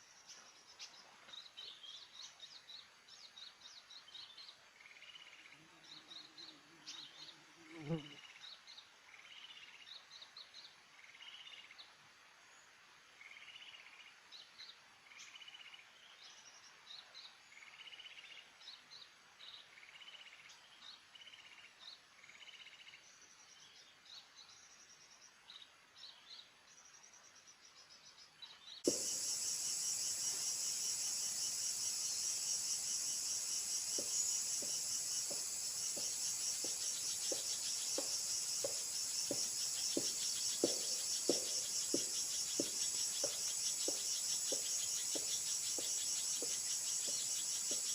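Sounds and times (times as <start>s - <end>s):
small bird chirping: 28.5s - 47.9s
insect chorus pulsing trill: 28.9s - 47.9s.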